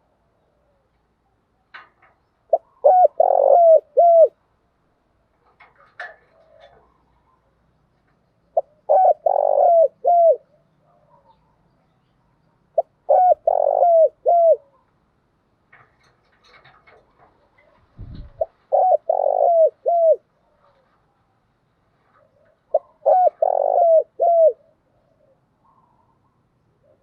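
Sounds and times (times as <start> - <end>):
dove cooing: 2.5 - 4.4, 6.0 - 7.5, 8.6 - 11.5, 12.8 - 14.9, 16.5 - 21.0, 22.1 - 27.0
short low thump: 18.0 - 18.4.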